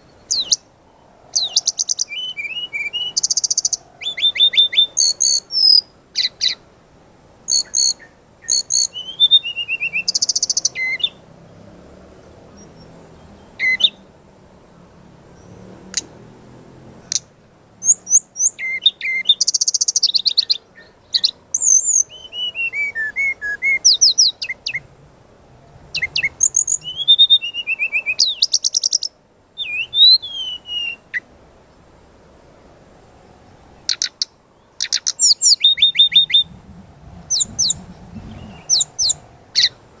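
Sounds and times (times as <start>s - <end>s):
bird singing high trills: 0.0s - 6.6s, 7.5s - 11.2s, 12.5s - 14.1s, 17.8s - 24.9s, 25.9s - 31.3s, 33.8s - 36.6s, 37.2s - 39.8s.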